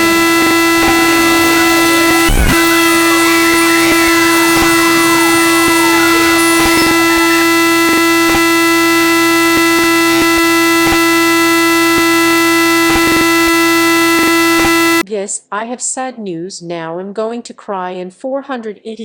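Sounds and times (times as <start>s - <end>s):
harsh steady alarm tone: 0.0s - 15.0s.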